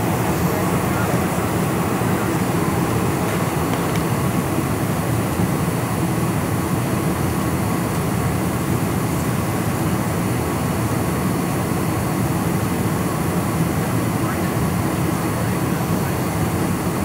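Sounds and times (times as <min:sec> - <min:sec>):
jet engine and airflow rumble: 0:00.0 - 0:17.0.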